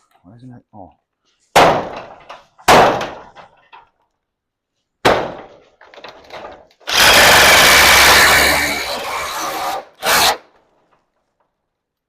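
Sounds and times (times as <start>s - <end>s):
sharp knocks: 1.6s - 3.5s.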